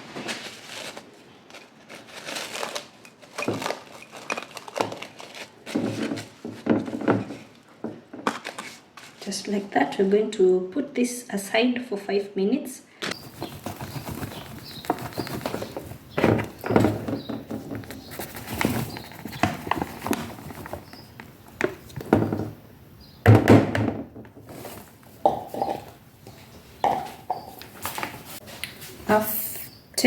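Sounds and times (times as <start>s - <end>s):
kitchen containers clattering: 13.2s - 20.8s.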